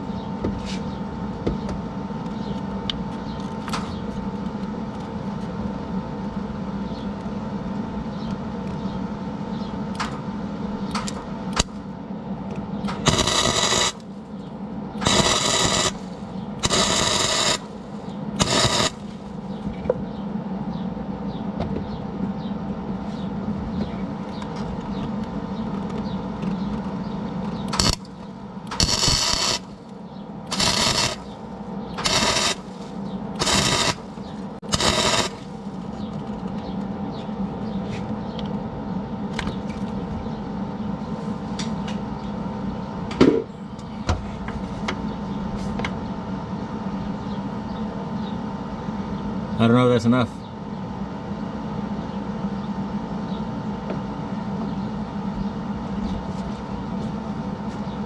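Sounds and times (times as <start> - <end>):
steady machine hum: 0.0 - 58.0
welding arc crackling sizzle: 12.9 - 14.4, 15.0 - 19.6, 27.7 - 36.3.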